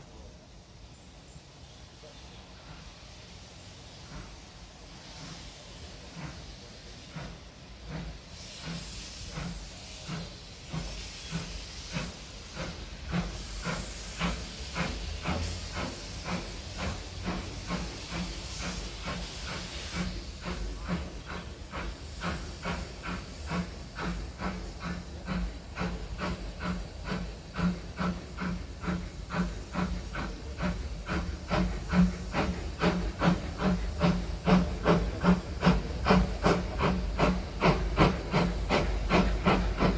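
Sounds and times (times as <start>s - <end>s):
steam hissing: 0.0s - 39.9s
steam locomotive exhaust beats: 0.0s - 39.9s.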